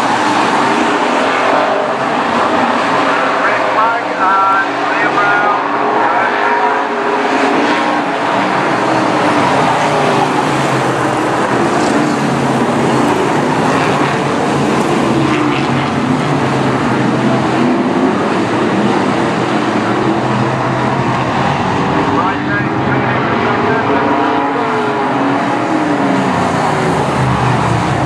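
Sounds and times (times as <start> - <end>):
race car engines roaring: 0.0 - 28.0.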